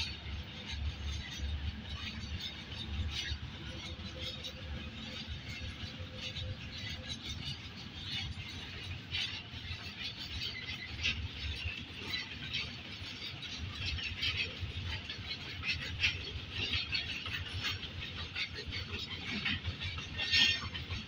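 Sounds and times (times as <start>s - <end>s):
freight train rumbling: 0.0s - 21.0s
steel wheels squealing on rails: 0.0s - 21.0s.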